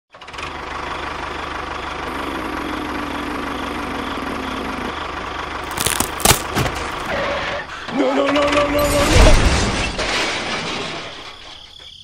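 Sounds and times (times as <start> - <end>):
engine idling: 0.4 - 8.0.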